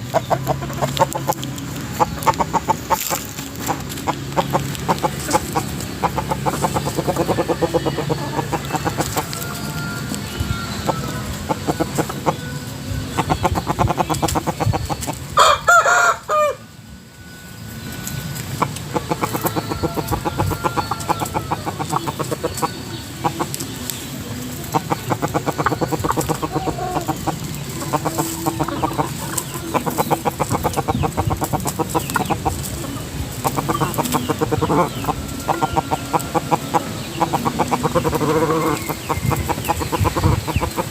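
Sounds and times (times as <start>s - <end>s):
chickens clucking: 0.0s - 40.9s
rooster crowing: 15.4s - 16.7s.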